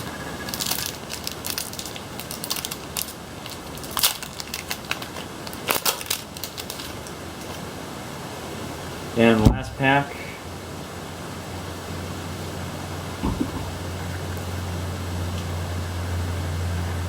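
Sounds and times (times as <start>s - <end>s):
trading cards and foil wrapper crinkling: 0.4s - 7.7s.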